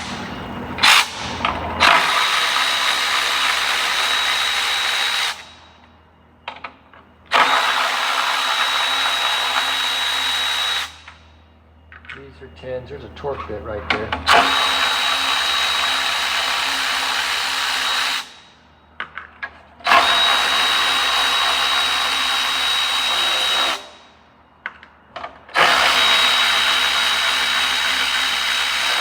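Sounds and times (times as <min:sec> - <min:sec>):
cordless drill whining: 0:01.8 - 0:05.5, 0:07.3 - 0:11.1, 0:14.3 - 0:18.4, 0:19.9 - 0:23.9, 0:25.6 - 0:29.0.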